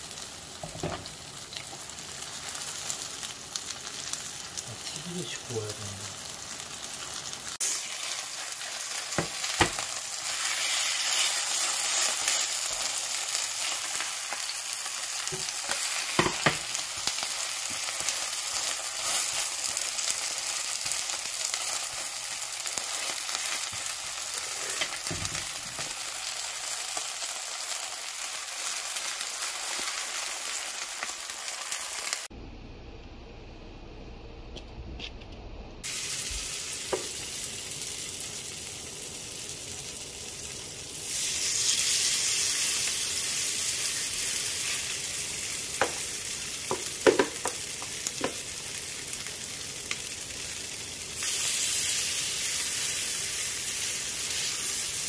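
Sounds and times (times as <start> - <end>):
pancakes sizzling in oil: 0.0 - 32.3, 35.8 - 55.0
spatula knocking on pan: 46.7 - 47.6.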